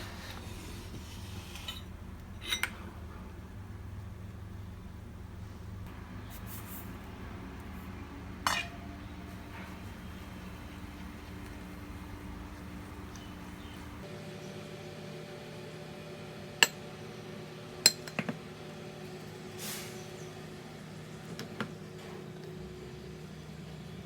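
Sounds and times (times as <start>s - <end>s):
low hum: 0.0s - 14.1s
kitchenware clinks: 1.5s - 2.9s, 8.4s - 14.0s.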